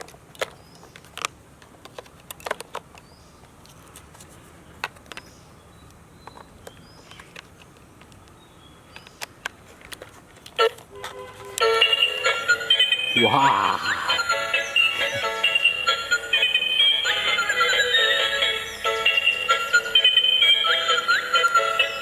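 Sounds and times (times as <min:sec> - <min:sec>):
small plastic clicks and knocks: 0:00.0 - 0:04.1, 0:04.8 - 0:10.9.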